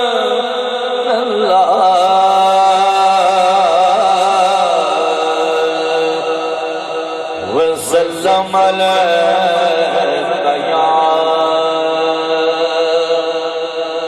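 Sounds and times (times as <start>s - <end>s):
man chanting: 0.0s - 14.0s.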